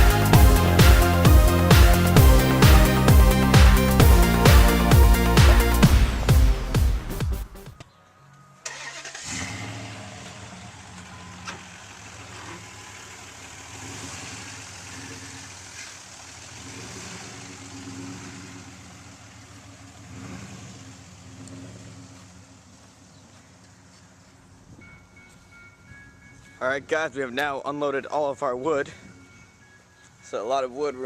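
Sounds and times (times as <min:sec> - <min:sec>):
vehicle engine idling: 0:00.0 - 0:07.7, 0:08.7 - 0:24.7
backing music: 0:00.0 - 0:08.5.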